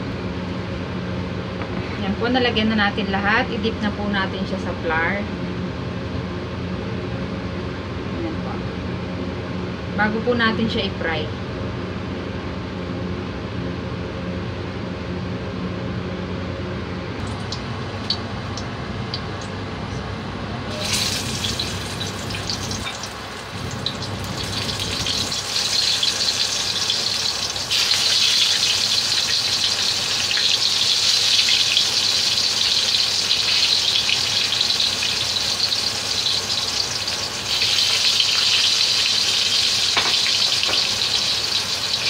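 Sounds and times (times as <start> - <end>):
steady low hum: 0.0 - 31.2
food sizzling in hot oil: 17.2 - 18.6, 20.7 - 42.0.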